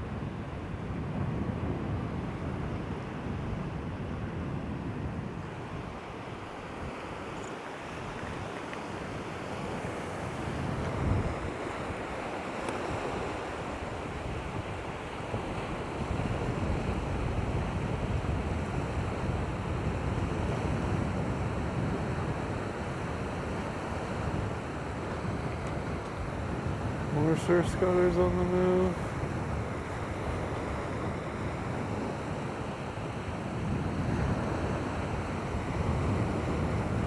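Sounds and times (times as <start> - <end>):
surf on shoreline: 0.0 - 37.0
wind buffeting microphone: 0.0 - 37.0.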